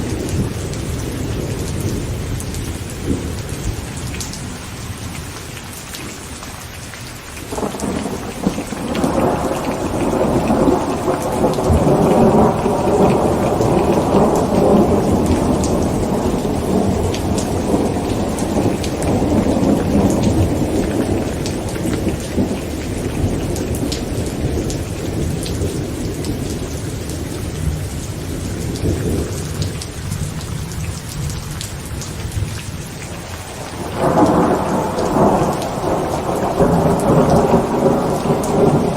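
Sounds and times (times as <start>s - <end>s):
heavy rain drumming on a tent: 0.0s - 38.9s
thunder rumbling: 7.5s - 32.6s, 33.2s - 38.9s.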